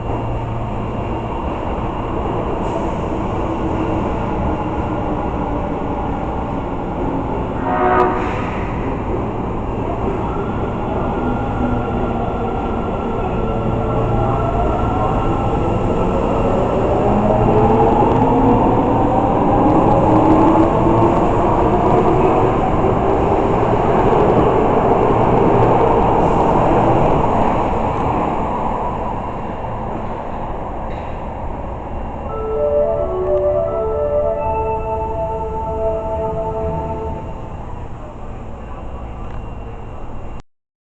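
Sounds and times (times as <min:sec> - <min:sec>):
subway motor whine rising: 0:31.8 - 0:40.4.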